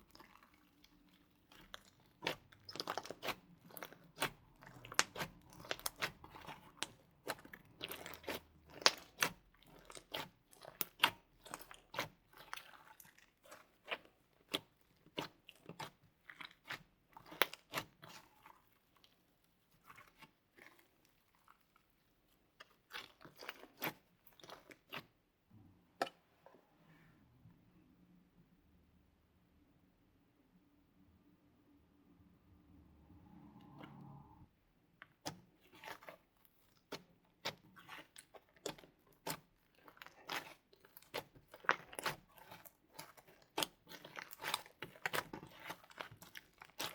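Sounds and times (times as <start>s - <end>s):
slime squished by hand: 0.0s - 25.2s, 35.0s - 46.9s.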